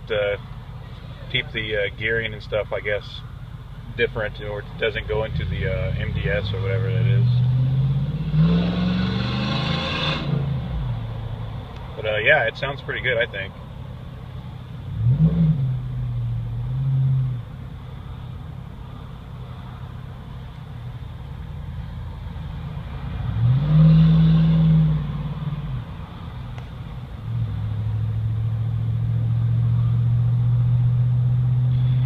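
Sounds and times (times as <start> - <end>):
truck exhaust rumbling: 0.0 - 32.0.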